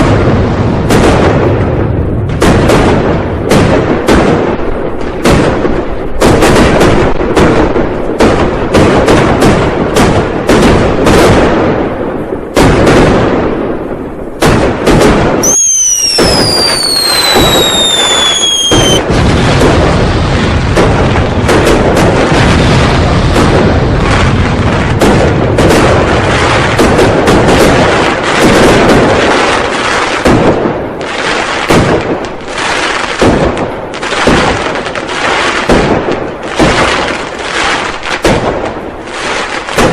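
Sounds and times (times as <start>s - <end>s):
firecracker bangs: 0.0s - 39.9s
whistling firework: 14.9s - 30.4s.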